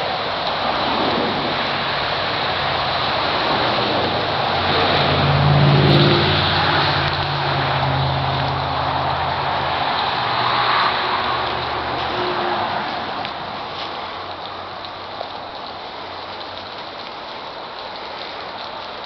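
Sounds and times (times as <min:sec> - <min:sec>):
engine running: 0:00.8 - 0:13.9.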